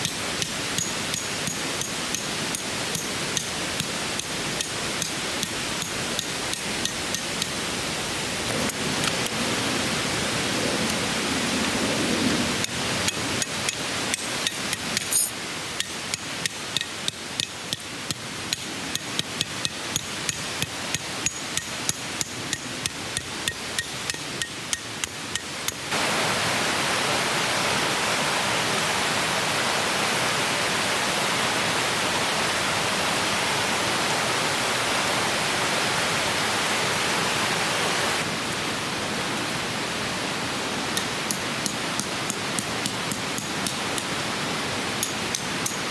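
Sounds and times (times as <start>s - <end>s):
stream flowing: 0.0s - 45.9s
sharp hammer-like taps: 13.1s - 25.8s.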